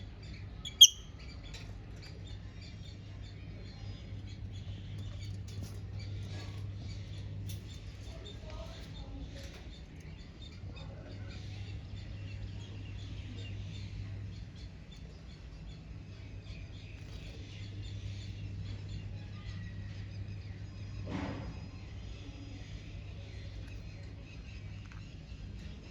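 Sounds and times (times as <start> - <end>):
steady low hum: 0.0 - 25.9
lovebirds chirping: 0.3 - 1.1.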